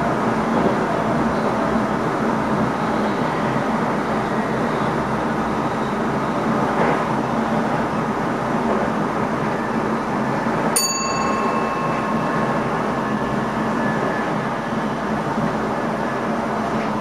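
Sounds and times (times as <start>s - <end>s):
electric train running: 8.2s - 17.0s
bell-like ding: 10.8s - 13.2s.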